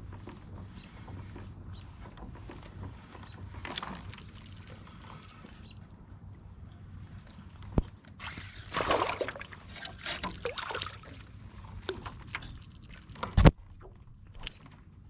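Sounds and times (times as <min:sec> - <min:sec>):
water splashing: 0:08.2 - 0:13.4.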